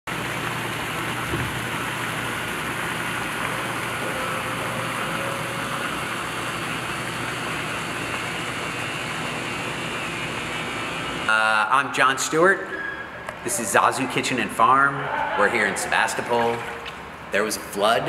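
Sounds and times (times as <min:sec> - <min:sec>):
water pump motor running: 0:00.1 - 0:18.0
thump: 0:01.3 - 0:01.6.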